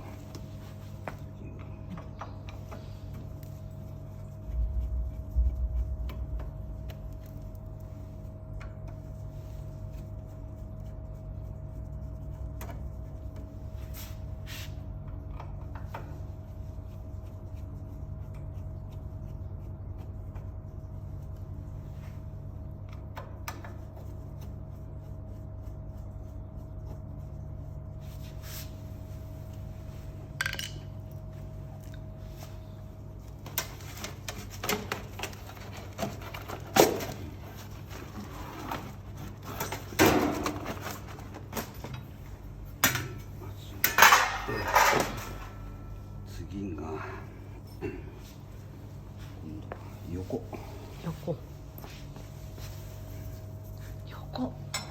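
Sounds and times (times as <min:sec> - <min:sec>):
machine hum with high whine: 0:00.0 - 0:54.9
knocks and clatters of parts: 0:30.4 - 0:30.9, 0:43.8 - 0:45.6.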